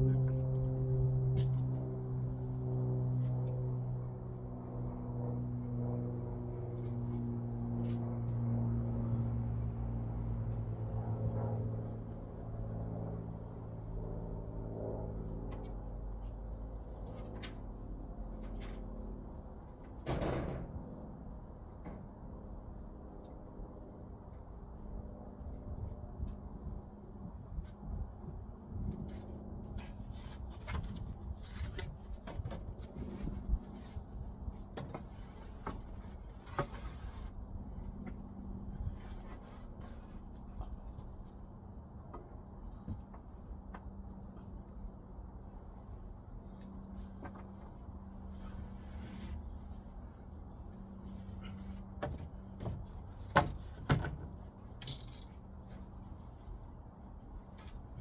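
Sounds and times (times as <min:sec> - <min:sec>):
steady low hum: 0:00.0 - 0:58.0
knocks and clunks of a cover: 0:51.4 - 0:55.1.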